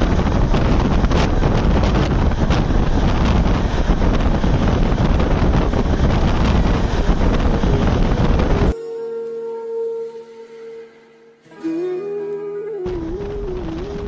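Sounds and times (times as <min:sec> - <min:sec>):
train rumbling at speed: 0:00.0 - 0:08.8, 0:12.8 - 0:14.0
wind buffeting microphone: 0:00.0 - 0:08.8, 0:12.8 - 0:14.0.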